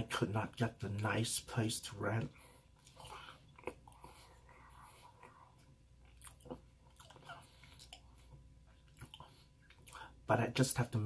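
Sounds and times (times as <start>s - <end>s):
person chewing cookie: 2.2s - 10.2s.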